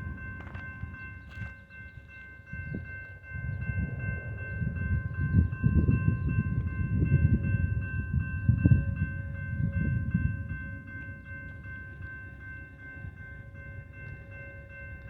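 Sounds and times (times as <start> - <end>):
freight train rumbling: 0.0 - 15.0
high multi-note ringing tone: 0.0 - 15.0.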